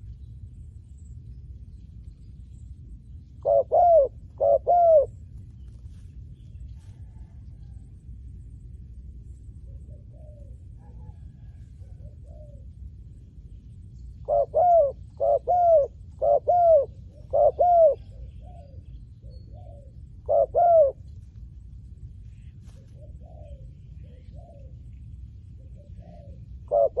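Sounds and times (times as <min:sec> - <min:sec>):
dove cooing: 0:03.4 - 0:05.2, 0:09.7 - 0:12.8, 0:14.2 - 0:21.2, 0:22.4 - 0:24.8, 0:25.6 - 0:27.0
faint coos of another dove: 0:03.4 - 0:05.2, 0:06.7 - 0:08.0, 0:09.6 - 0:13.1, 0:14.2 - 0:21.3, 0:22.2 - 0:27.0.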